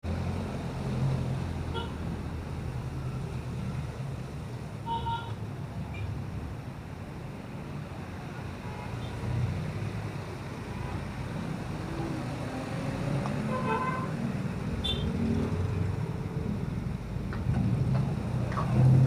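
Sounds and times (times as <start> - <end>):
vehicle engines rumbling: 0.0 - 19.0
car horn toot: 14.8 - 15.1.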